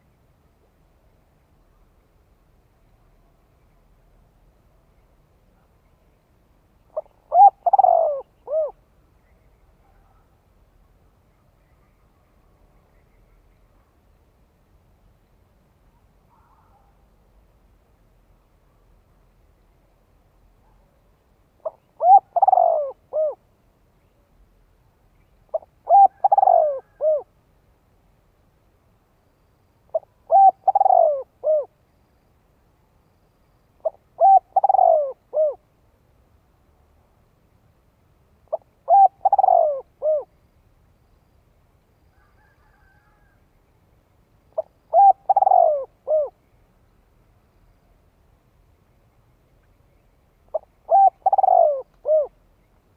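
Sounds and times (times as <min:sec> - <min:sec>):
dove cooing: 0:06.9 - 0:08.8, 0:21.6 - 0:23.4, 0:25.5 - 0:27.3, 0:29.9 - 0:31.7, 0:33.8 - 0:35.6, 0:38.5 - 0:40.3, 0:44.6 - 0:46.4, 0:50.5 - 0:52.4.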